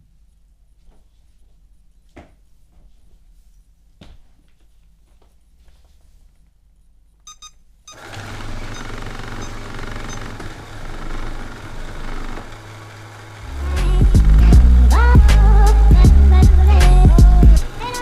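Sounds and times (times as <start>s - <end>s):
short beep: 7.3s - 8.0s
robot vacuum motor hum: 7.9s - 18.0s.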